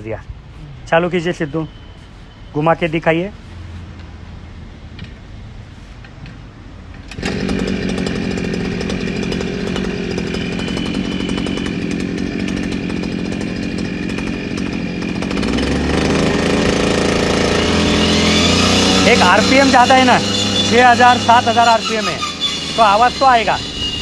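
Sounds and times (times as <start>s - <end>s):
brush cutter running at high revs: 7.1s - 24.0s.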